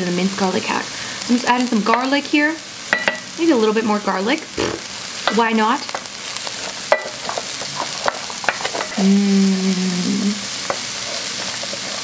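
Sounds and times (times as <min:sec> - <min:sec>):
vegetables sizzling in oil: 0:00.0 - 0:12.0
person humming: 0:04.6 - 0:04.8, 0:09.0 - 0:10.4.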